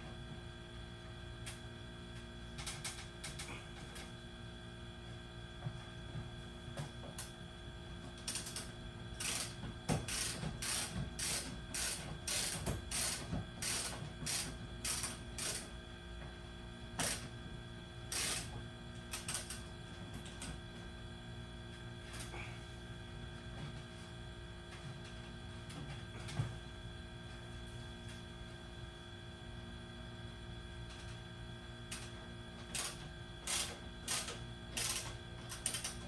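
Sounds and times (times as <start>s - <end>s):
steady background hum: 0.0s - 36.0s
hand mechanism rasping strokes: 9.2s - 15.6s, 32.8s - 36.0s.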